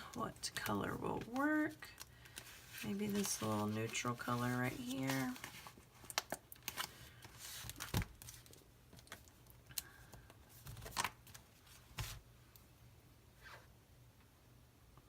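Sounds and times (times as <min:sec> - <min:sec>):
sticker sheets rustling: 0:00.0 - 0:09.2.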